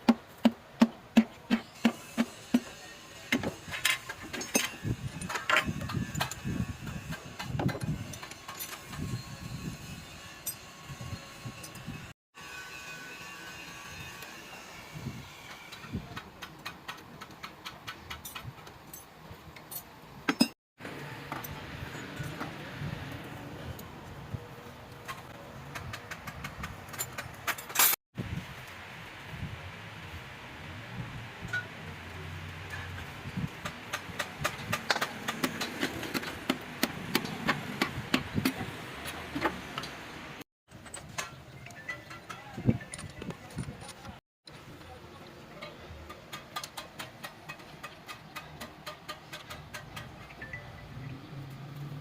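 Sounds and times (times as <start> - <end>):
hand tools clicking and clinking: 3.3 - 9.2, 15.7 - 20.6, 24.9 - 28.0, 32.7 - 40.0, 40.7 - 44.2, 45.6 - 50.8
metal clicks and knocks: 45.6 - 50.6.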